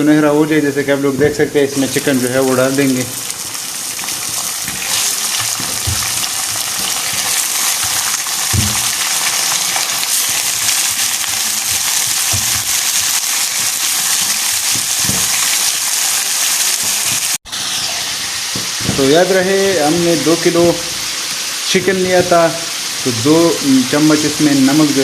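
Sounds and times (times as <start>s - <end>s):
chicken sizzling in hot fat: 0.0s - 25.0s
low knocks in a pan: 8.4s - 9.1s.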